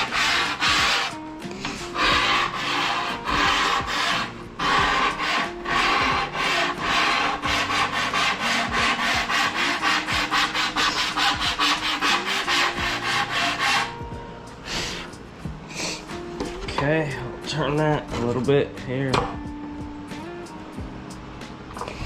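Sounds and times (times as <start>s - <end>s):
file rasping over foam: 0.0s - 14.0s.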